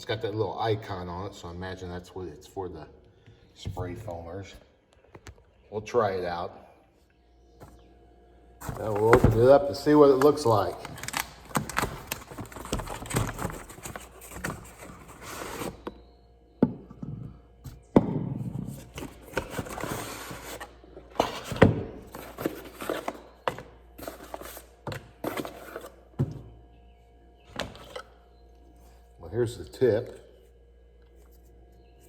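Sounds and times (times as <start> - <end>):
packaging rustling: 8.6 - 15.8.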